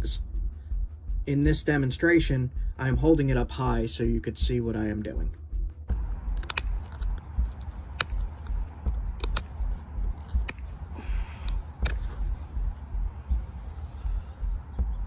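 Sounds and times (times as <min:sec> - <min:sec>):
low rumble: 0:00.0 - 0:15.0
stone flakes snapping off: 0:06.3 - 0:08.6, 0:10.2 - 0:10.7.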